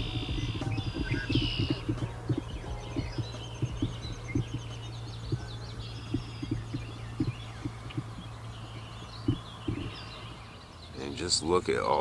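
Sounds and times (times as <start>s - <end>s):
low pops from pond: 0.0s - 10.3s
songbirds chirping: 0.0s - 12.0s
steady low hum: 0.0s - 12.0s.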